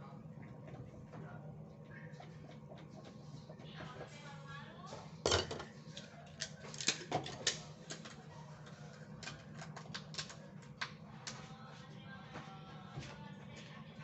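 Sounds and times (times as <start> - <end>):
kitchenware clicks and taps: 5.3 - 5.7.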